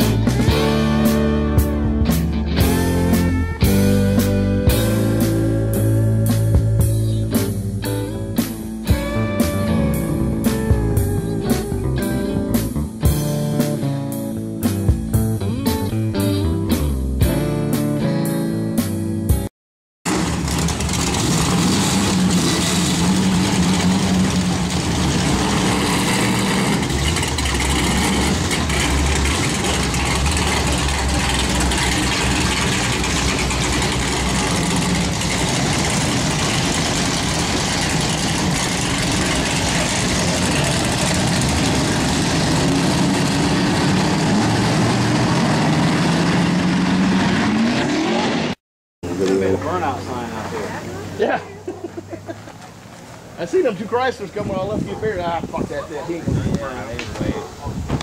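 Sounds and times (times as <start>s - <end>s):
car engine revving: 20.1s - 51.2s.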